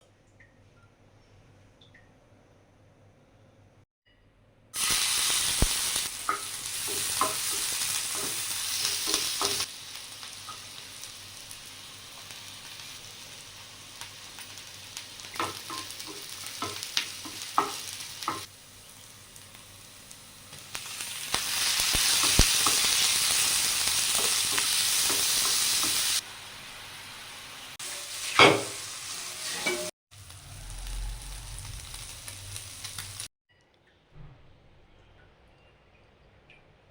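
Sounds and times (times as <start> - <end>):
food sizzling in hot oil: 4.8 - 33.3
utensil scraping a pan: 27.9 - 29.9.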